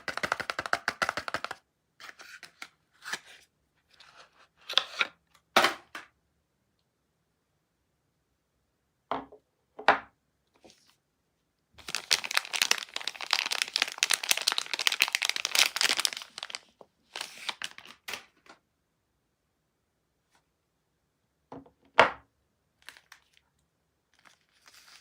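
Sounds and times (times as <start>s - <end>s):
soap wrapping crinkling: 0.0s - 3.2s, 11.8s - 18.4s, 22.8s - 25.0s.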